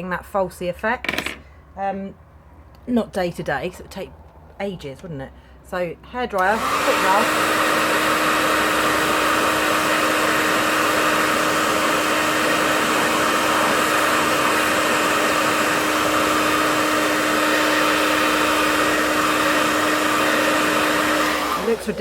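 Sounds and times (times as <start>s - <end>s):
hair dryer running: 6.3s - 22.0s.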